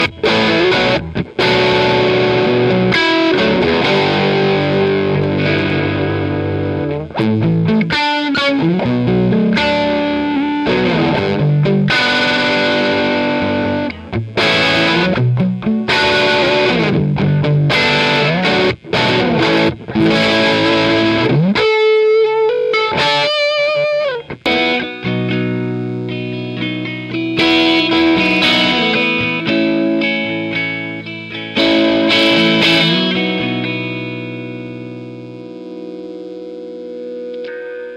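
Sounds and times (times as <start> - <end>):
distorted electric guitar chords: 0.0 - 37.9.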